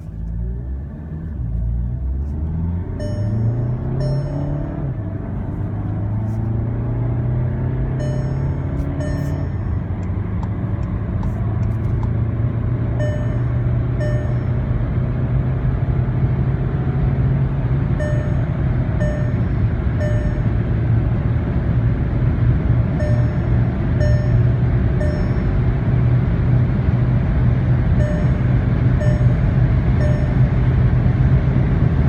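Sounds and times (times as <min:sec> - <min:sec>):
diesel engine drone: 0:00.0 - 0:32.0
road and wind noise: 0:00.0 - 0:32.0
short electronic beeps: 0:03.0 - 0:04.9, 0:07.8 - 0:10.0, 0:13.0 - 0:14.6, 0:18.0 - 0:20.6, 0:23.0 - 0:25.6, 0:28.0 - 0:30.5.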